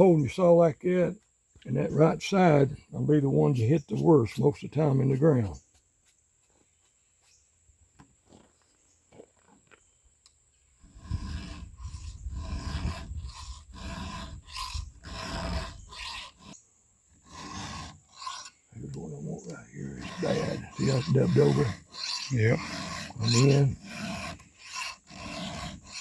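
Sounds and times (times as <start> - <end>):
file rasping on chainsaw teeth: 10.8 - 26.0
file clicks on chain: 11.0 - 16.6, 17.3 - 26.0.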